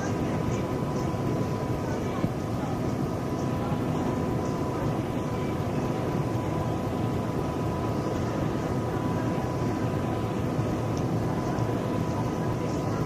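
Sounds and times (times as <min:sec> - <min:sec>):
faint constant whine: 0:00.0 - 0:13.0
machine running rumble: 0:00.0 - 0:13.0.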